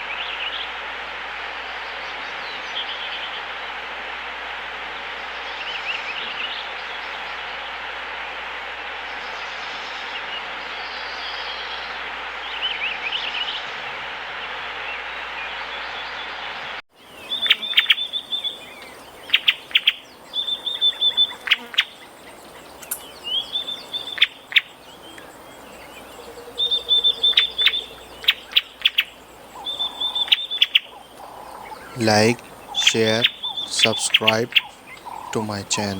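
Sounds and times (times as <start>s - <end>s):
birdsong with chirps: 17.0s - 35.9s
steady rushing hiss: 17.0s - 35.9s.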